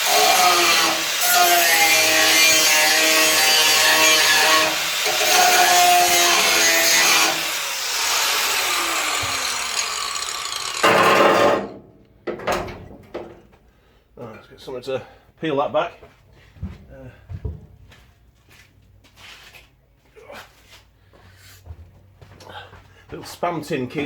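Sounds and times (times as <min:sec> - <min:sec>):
angle grinder grinding metal: 0:00.0 - 0:11.7
grinder spinning down: 0:03.3 - 0:11.6.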